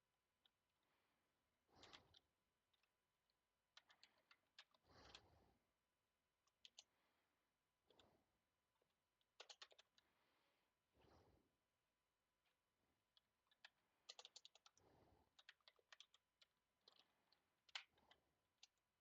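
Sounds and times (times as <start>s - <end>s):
faint keyboard typing: 1.7s - 3.0s, 3.7s - 5.6s, 6.4s - 7.1s, 7.8s - 10.4s, 13.1s - 19.0s.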